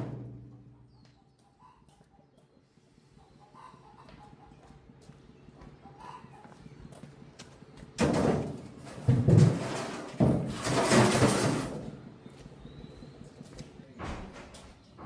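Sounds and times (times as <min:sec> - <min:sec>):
rough scraping: 0:08.1 - 0:11.9.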